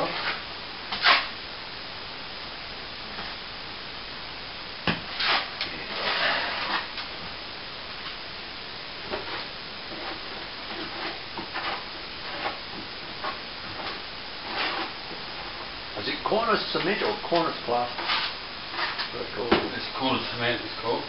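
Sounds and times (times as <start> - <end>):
short scraping sounds: 0.0 - 1.3, 5.1 - 6.9, 18.0 - 19.1.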